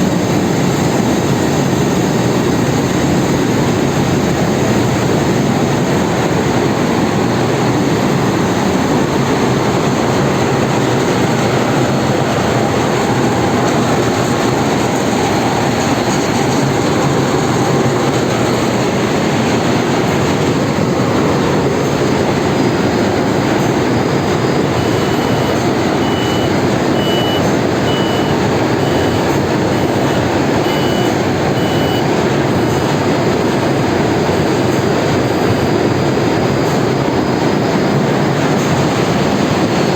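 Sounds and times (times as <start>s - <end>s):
engine-room machinery roaring: 0.0s - 39.9s
short high beeps: 24.8s - 32.9s.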